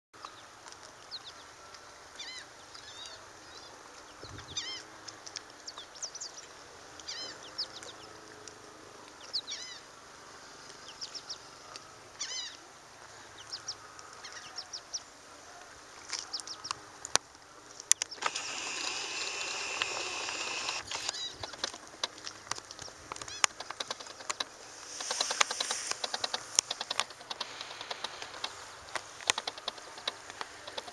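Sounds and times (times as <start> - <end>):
sharp clicks: 17.8 - 30.9
birds calling: 17.9 - 30.9
hiss: 18.2 - 21.1, 24.7 - 30.9.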